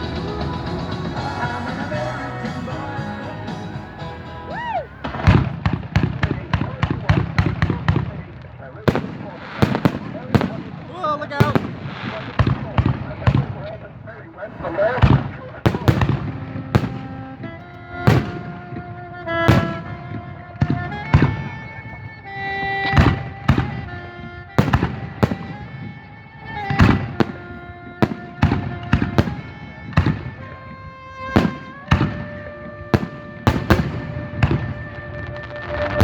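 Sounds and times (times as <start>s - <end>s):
music with long held notes: 0.0s - 5.2s
fireworks bursting: 0.0s - 36.0s.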